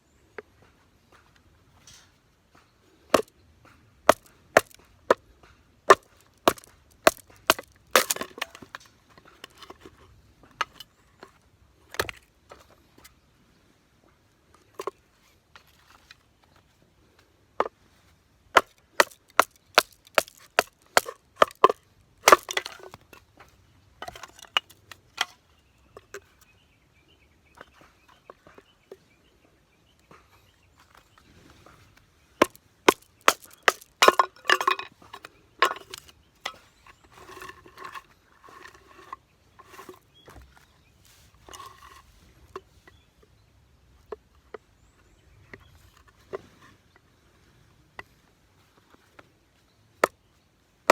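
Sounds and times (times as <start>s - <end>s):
wood scraping and rustling: 5.9s - 11.4s, 18.9s - 25.4s, 30.2s - 43.0s.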